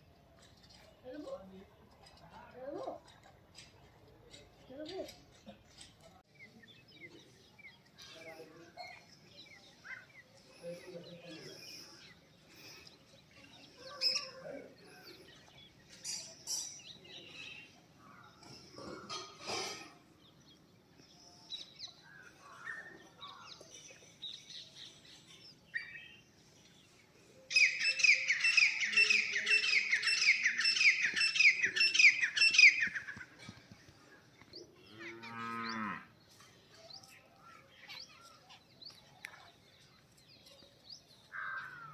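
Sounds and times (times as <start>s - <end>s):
scattered bird calls: 3.1s - 41.9s.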